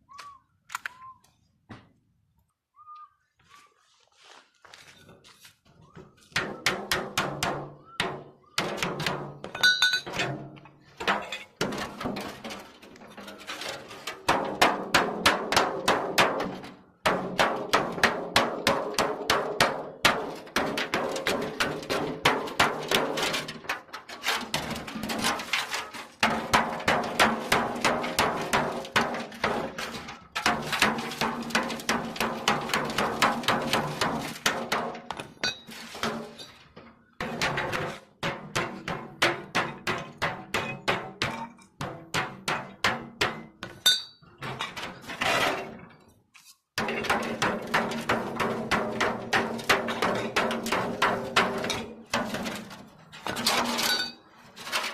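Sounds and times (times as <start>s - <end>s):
hammer beating on metal: 6.4s - 10.4s.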